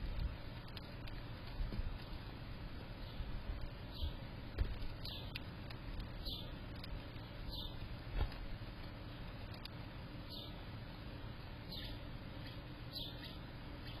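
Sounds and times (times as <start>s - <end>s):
low background noise: 0.0s - 14.0s
small bird chirping: 2.9s - 7.9s, 9.1s - 10.7s, 11.6s - 14.0s.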